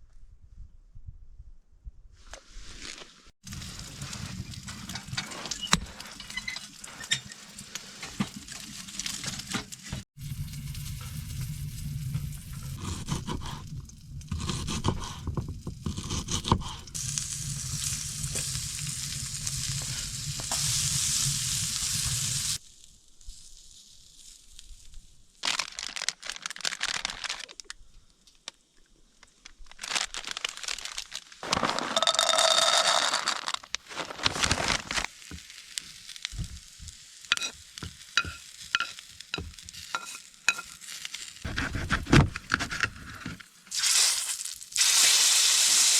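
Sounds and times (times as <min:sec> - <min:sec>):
food sizzling in a frying pan: 0:03.4 - 0:13.6, 0:16.9 - 0:22.6, 0:34.6 - 0:41.5, 0:43.5 - 0:45.9
utensil scraping and clinking pan: 0:03.6 - 0:10.0, 0:37.3 - 0:40.9.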